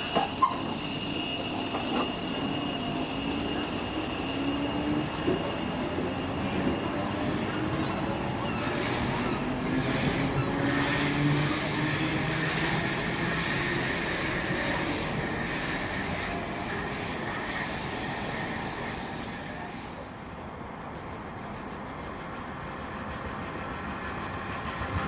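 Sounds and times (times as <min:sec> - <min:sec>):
high-pitched wheel squeal: 0:00.0 - 0:07.7, 0:08.4 - 0:19.8
train rail noise: 0:00.0 - 0:25.0.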